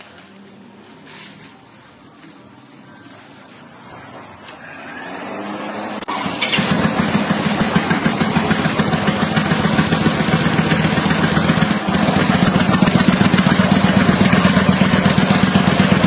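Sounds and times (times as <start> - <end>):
motorcycle engine idling: 6.2 - 16.0.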